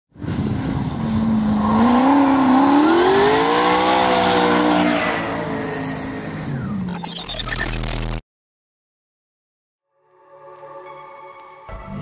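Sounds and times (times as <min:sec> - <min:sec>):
car engine revving: 0:00.2 - 0:06.9.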